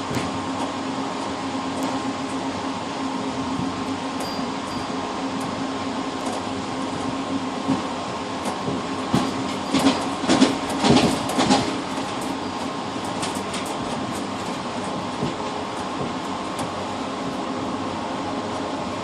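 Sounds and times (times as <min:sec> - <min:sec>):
train rolling rumble: 0:00.0 - 0:19.0
wheels clacking over rail joints: 0:06.2 - 0:16.8.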